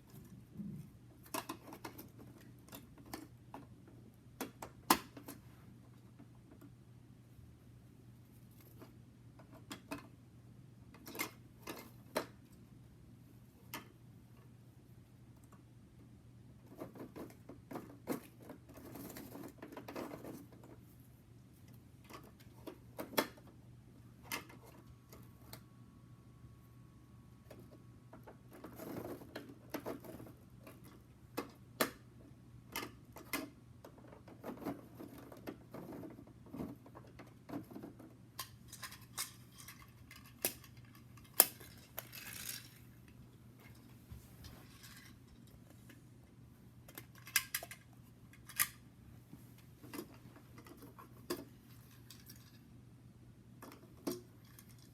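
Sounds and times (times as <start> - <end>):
plastic toy clicks and rattles: 38.4 - 42.8, 46.9 - 48.8.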